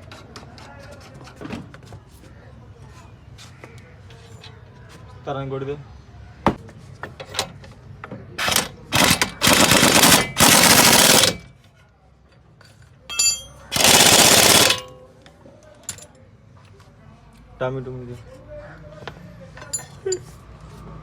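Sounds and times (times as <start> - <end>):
pneumatic impact wrench firing: 8.4 - 11.5, 13.7 - 14.9
tools clicking and knocking: 8.4 - 11.5, 13.1 - 15.0, 15.8 - 16.1.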